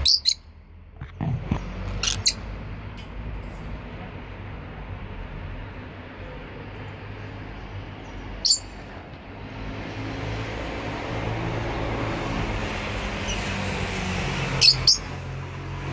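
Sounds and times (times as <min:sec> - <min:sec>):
bird shrill chirp: 0:00.0 - 0:00.4, 0:08.4 - 0:08.8.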